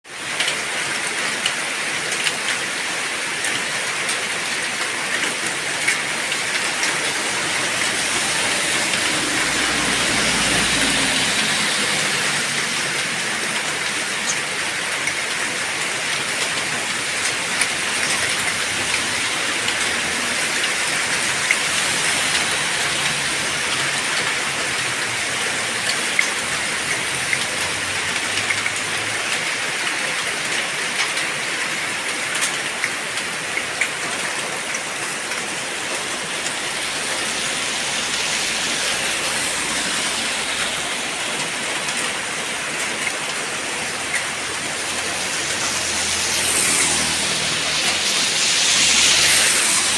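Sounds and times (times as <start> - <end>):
heavy rain pouring: 0.0 - 49.9
sharp raindrop ticks: 12.8 - 31.4.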